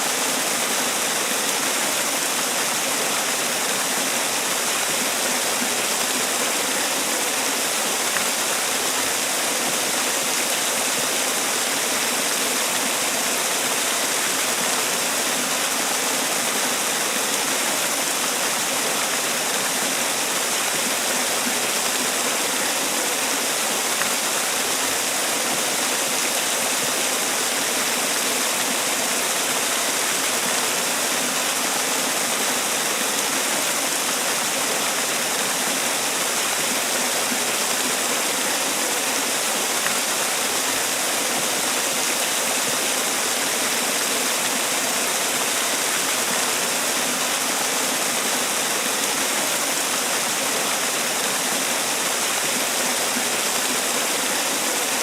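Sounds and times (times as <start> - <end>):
waterfall splashing: 0.0 - 55.0.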